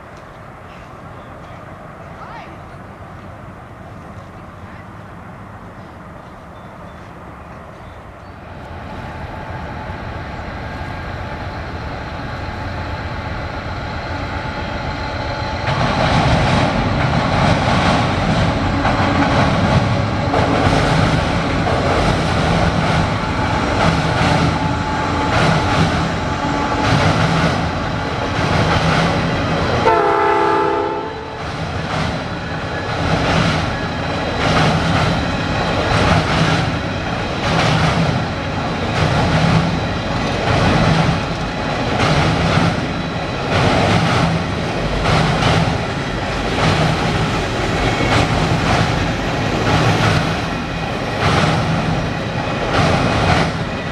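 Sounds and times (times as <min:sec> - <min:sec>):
wheels clickety-clack on rail joints: 0:00.0 - 0:11.5, 0:14.2 - 0:53.9
freight train rumbling past: 0:00.0 - 0:53.9
train horn chord: 0:29.8 - 0:31.4.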